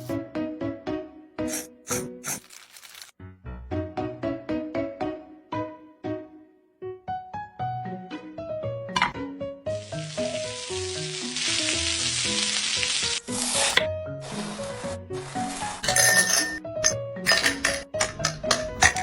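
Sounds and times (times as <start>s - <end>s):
light bouncy background tune: 3.4s - 9.8s, 15.8s - 19.0s
food sizzling in a pan: 9.8s - 15.8s.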